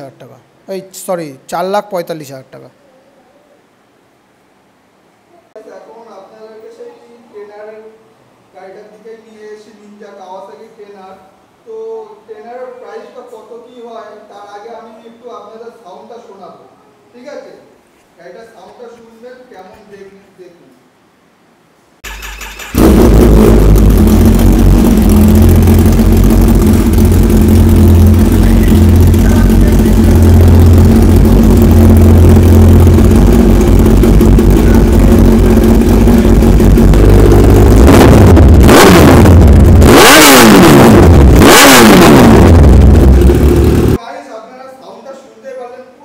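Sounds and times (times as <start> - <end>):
motorcycle engine idling and revving: 22.1 - 44.0.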